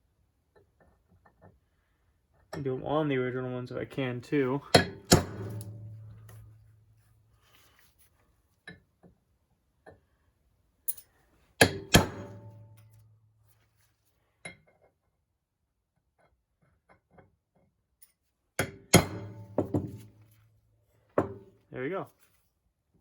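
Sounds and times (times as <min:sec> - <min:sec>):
hammer striking metal punch: 0:04.7 - 0:06.8, 0:11.6 - 0:13.0, 0:18.6 - 0:20.1.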